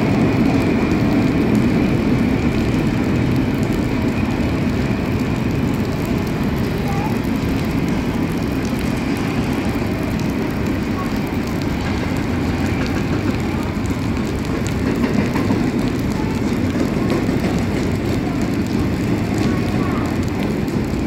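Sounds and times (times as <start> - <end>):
steel wheels on rails: 0.0 - 21.0.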